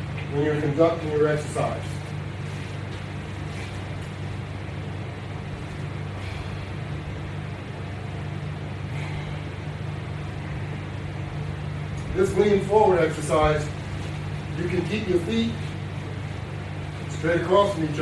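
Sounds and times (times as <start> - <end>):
machinery hum: 0.0 - 18.0.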